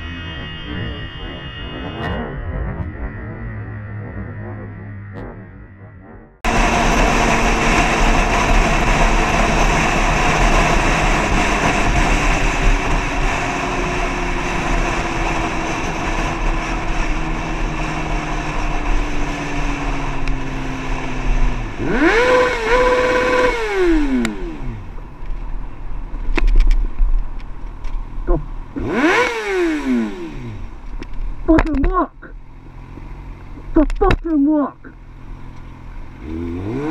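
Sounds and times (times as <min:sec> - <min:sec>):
pitched sound rising and dropping: 0:00.0 - 0:11.7
motorcycle engine: 0:00.0 - 0:36.9.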